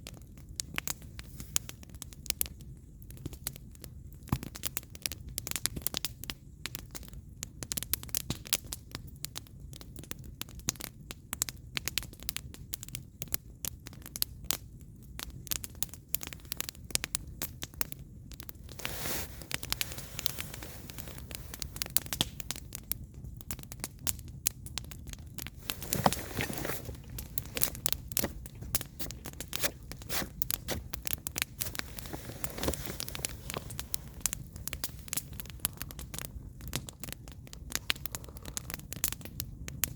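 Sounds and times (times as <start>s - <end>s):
firewood crackling and popping: 0.0s - 39.9s
fire hissing: 18.5s - 22.8s, 25.4s - 38.9s.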